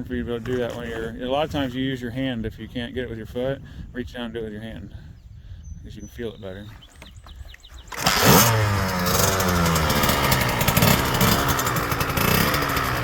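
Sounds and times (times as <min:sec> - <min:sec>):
dirt bike engine revving: 0:07.9 - 0:13.0.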